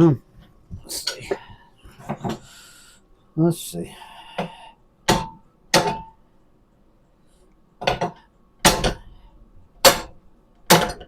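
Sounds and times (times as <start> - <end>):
hammer striking metal: 7.9 - 9.1, 9.8 - 11.0.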